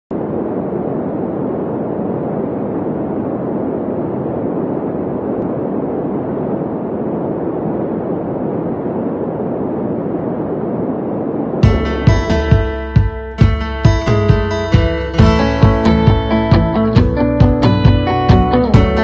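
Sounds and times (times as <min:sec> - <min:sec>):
steady rushing noise: 0:00.1 - 0:19.0.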